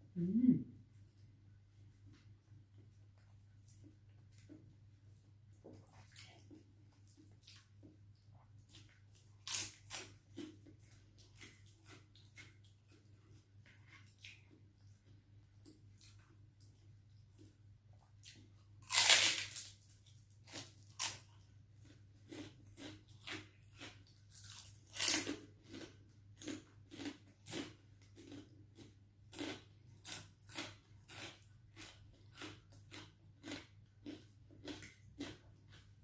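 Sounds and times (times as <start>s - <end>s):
crunchy chewing: 2.1s - 36.0s
loud crunching bites: 18.8s - 19.7s.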